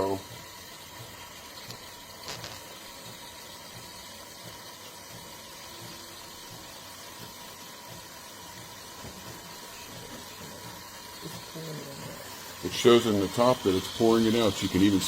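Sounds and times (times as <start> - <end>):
espresso machine humming and hissing: 0.0 - 15.0.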